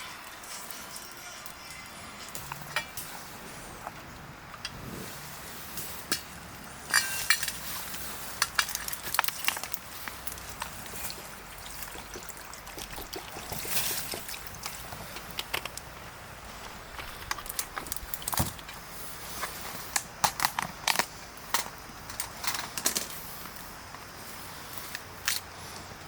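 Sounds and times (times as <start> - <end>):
dishes clinking: 6.9 - 8.8
liquid pouring: 7.6 - 16.0.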